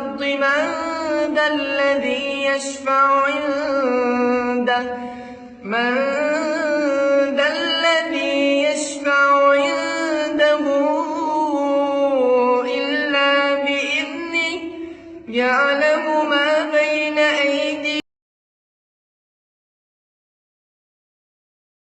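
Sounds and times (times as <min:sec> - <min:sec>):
person chanting melodically: 0:00.0 - 0:18.0.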